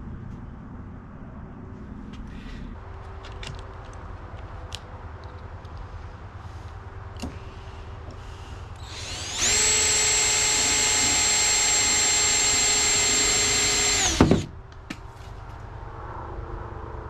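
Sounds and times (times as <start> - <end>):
drill knocking as it stops: 8.8 - 14.5
power drill whining: 8.8 - 14.5.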